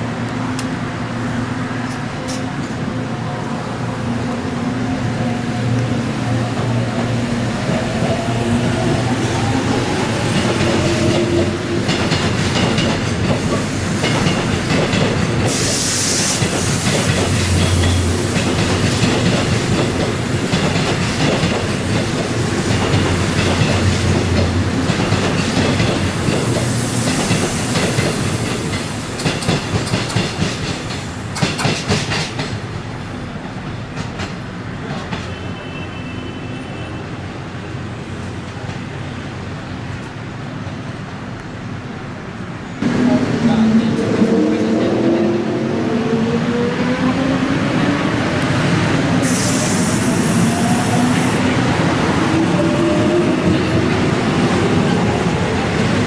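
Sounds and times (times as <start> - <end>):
train wheels clicking over rail joints: 10.2 - 32.8.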